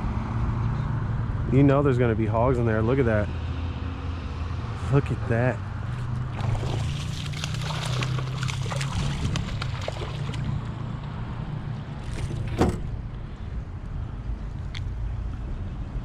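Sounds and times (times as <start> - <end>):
boat motor hum: 5.3 - 15.9.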